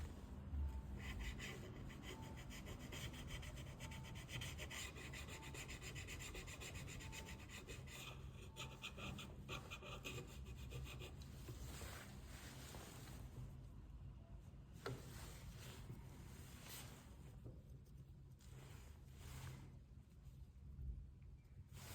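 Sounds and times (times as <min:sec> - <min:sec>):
small tool scraping a phone: 0:01.0 - 0:11.6.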